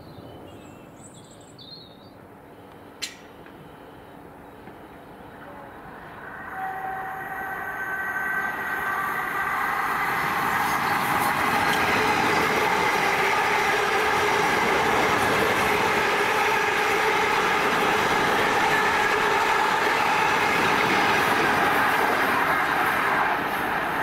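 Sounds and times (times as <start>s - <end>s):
train wheels on rails rushing: 6.2s - 24.0s.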